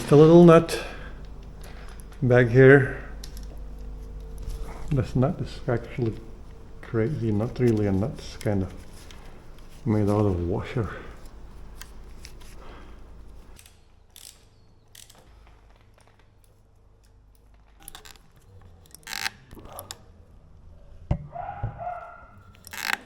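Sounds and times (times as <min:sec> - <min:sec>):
metal parts and hand tools clicking: 0:13.2 - 0:20.0, 0:22.4 - 0:23.0.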